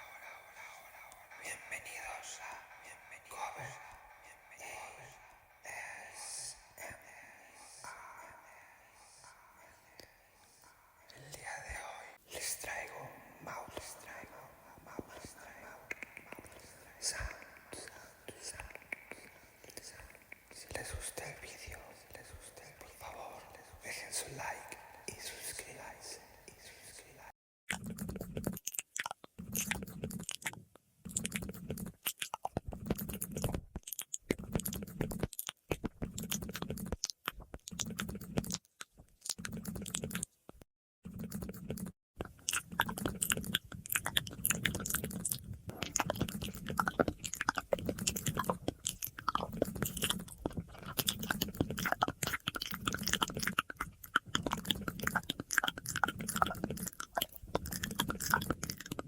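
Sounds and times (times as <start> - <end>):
wet mouth clicks and smacks: 27.7 - 59.0.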